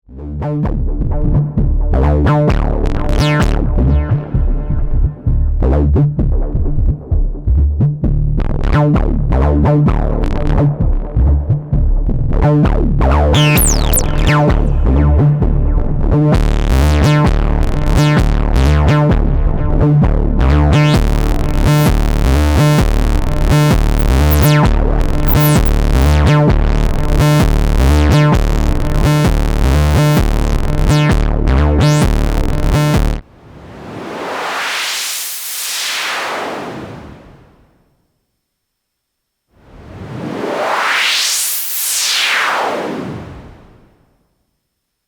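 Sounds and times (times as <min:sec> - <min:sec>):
bass-heavy synthesizer sequence: 0:00.2 - 0:33.8
hiss-like noise sweeping upward: 0:33.3 - 0:37.7, 0:39.6 - 0:44.0.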